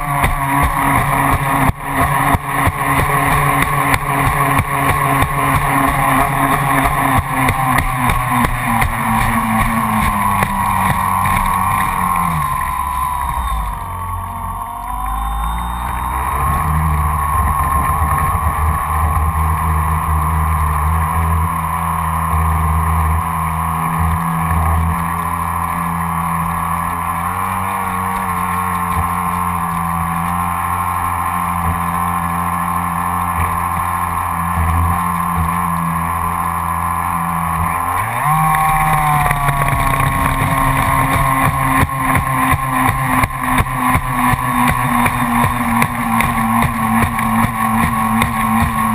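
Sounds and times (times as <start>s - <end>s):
high whine of electric motor: 0.0s - 48.9s
water rushing against hull: 38.2s - 48.9s.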